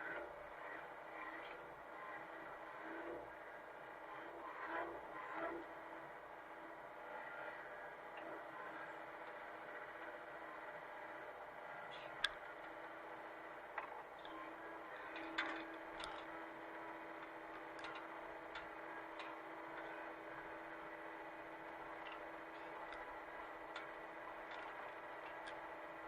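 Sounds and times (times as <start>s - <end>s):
excavator engine running: 0.0s - 26.0s
sharp clicks and knocks: 15.1s - 16.4s, 21.9s - 25.8s.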